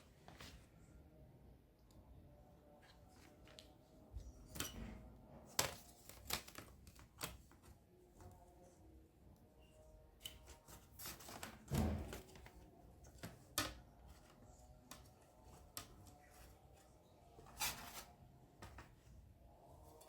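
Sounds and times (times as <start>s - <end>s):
household objects being handled: 10.2s - 20.0s.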